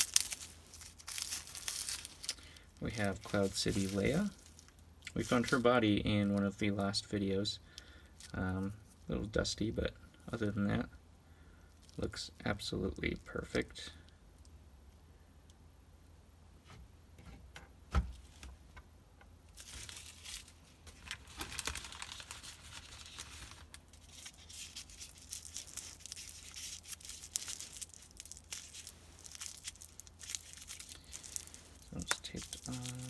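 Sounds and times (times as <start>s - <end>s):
packing tape tearing: 0.0s - 2.5s, 19.6s - 33.0s
bubble wrap crinkling: 0.0s - 7.3s, 8.1s - 9.4s, 19.5s - 33.0s.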